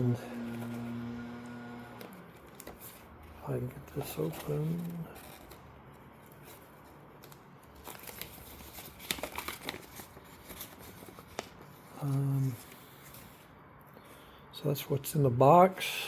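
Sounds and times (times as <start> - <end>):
cardboard ripping and rustling: 2.4 - 5.6, 6.3 - 12.6.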